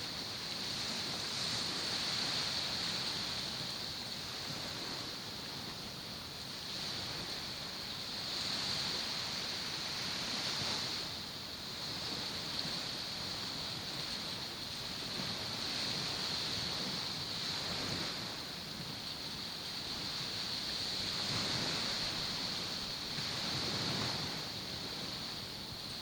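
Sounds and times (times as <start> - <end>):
steady high-pitched hiss: 0.0 - 26.0
waves washing against shore: 0.0 - 26.0.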